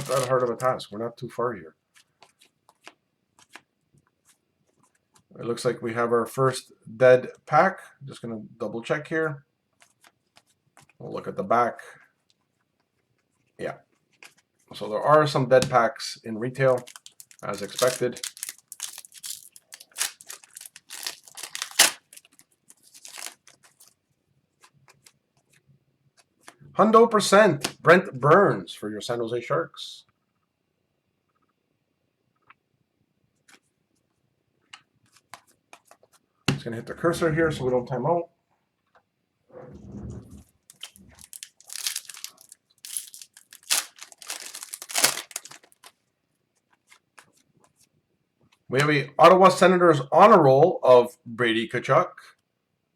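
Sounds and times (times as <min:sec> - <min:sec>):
foil wrapper crinkling and tearing: 0:00.0 - 0:00.7, 0:16.7 - 0:23.9, 0:40.7 - 0:46.0.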